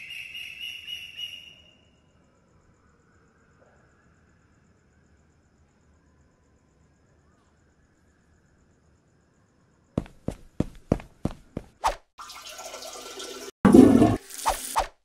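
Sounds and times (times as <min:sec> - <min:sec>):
faint crickets: 0:00.0 - 0:11.8
toilet flushing: 0:12.2 - 0:14.7.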